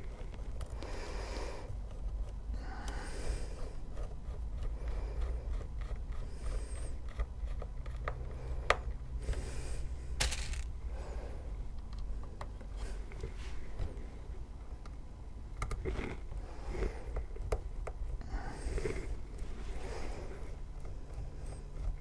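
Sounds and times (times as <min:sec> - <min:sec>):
clicks and scrapes of screws: 0:10.2 - 0:10.7.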